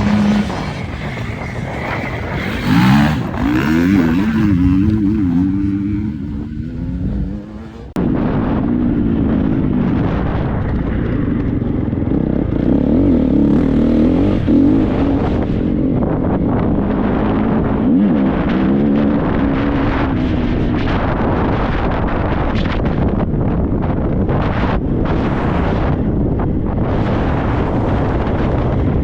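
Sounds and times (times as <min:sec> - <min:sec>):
motocross bike engine revving: 0:00.0 - 0:10.2, 0:11.6 - 0:20.7.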